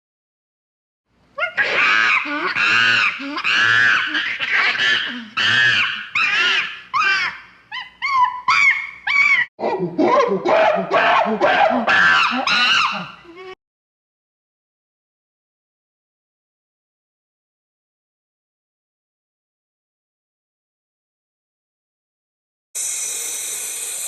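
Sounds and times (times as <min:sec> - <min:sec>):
high-pitched wavering cries: 0:05.4 - 0:13.6.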